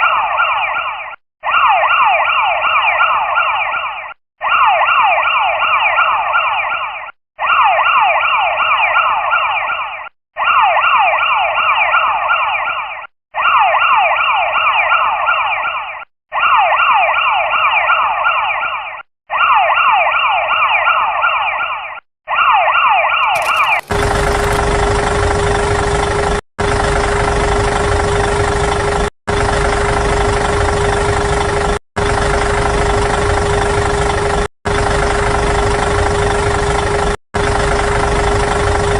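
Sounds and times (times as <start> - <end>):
electronic siren sweeps: 0.0 - 26.4
engine-like rumble with hum: 23.4 - 38.9.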